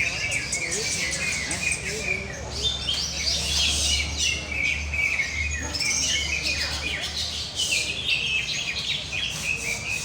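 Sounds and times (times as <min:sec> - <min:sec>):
birds singing: 0:00.0 - 0:10.0.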